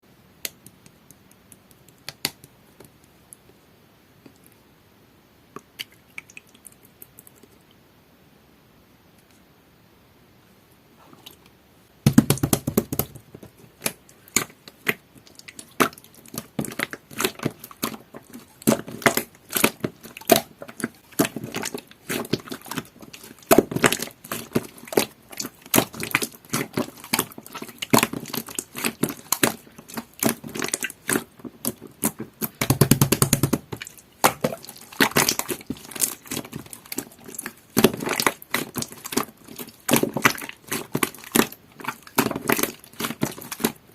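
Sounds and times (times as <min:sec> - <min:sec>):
slime squishing by hand: 0:12.0 - 0:43.9.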